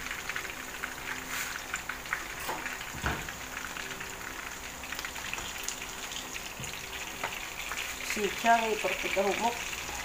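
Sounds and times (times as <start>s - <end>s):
fish frying in crackling oil: 0.0s - 10.0s.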